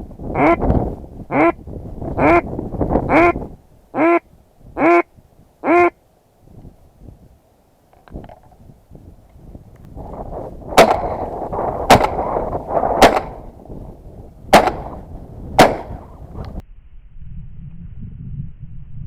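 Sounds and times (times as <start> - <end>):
shotgun blasts: 10.8 - 13.5, 14.5 - 16.2.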